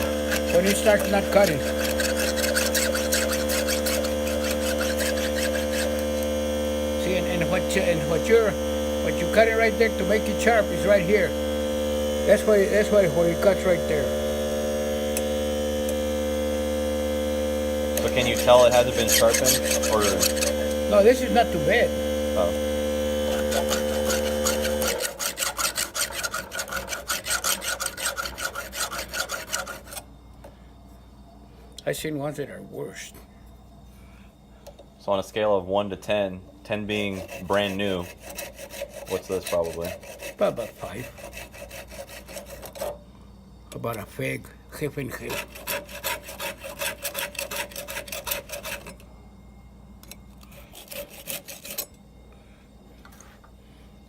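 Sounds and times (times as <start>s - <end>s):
file rasping on chainsaw chain: 0.0s - 6.3s, 12.3s - 14.0s, 18.0s - 21.8s, 23.3s - 30.0s, 36.8s - 43.0s, 45.0s - 49.0s, 50.4s - 52.0s
steady electrical hum: 0.0s - 54.0s.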